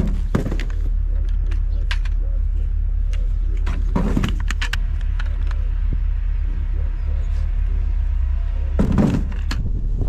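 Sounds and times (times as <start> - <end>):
sharp clicks and knocks: 0.0 - 2.2, 3.1 - 5.7, 8.8 - 9.7
vehicle engine rumbling: 0.0 - 10.0
clatter: 8.8 - 9.7.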